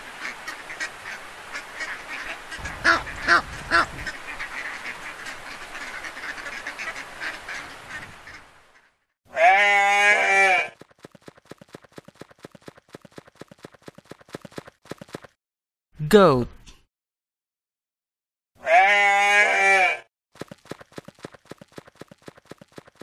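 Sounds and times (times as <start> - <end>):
duck quacking: 0.2 - 9.0
hooves clip-clopping: 10.7 - 15.3, 20.4 - 23.0.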